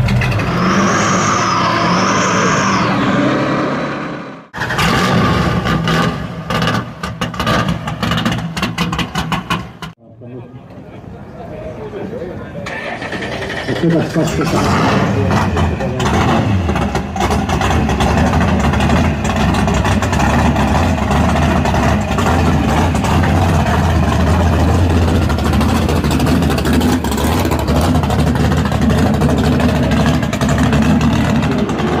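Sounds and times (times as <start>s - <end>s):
car engine idling: 12.7s - 32.0s.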